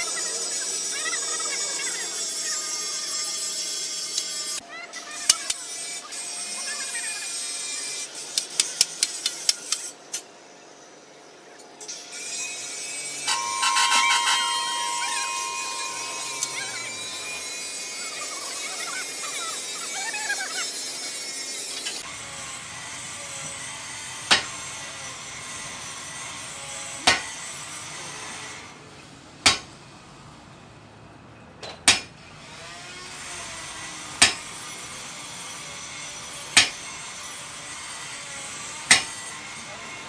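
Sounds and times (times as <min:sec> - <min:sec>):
high hissing sawing or grinding: 0:00.0 - 0:04.6, 0:11.8 - 0:28.6
hammer blows on metal: 0:13.3 - 0:18.0.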